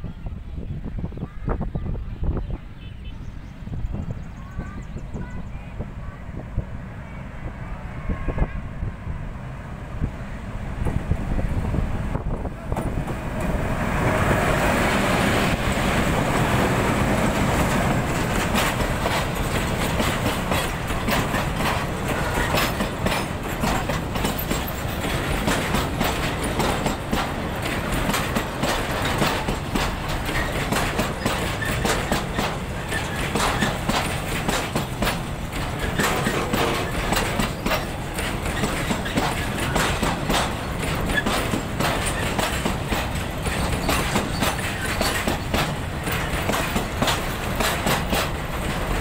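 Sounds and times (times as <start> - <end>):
diesel locomotive running: 0.1 - 49.0
wheels clattering over rail joints: 12.6 - 49.0.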